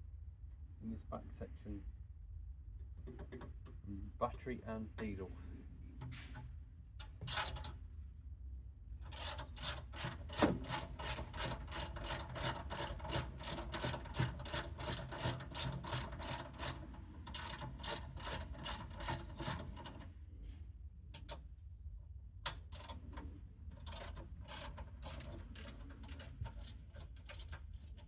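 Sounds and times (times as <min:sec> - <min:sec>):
socket ratchet clicking: 0:09.1 - 0:19.9, 0:23.8 - 0:27.6.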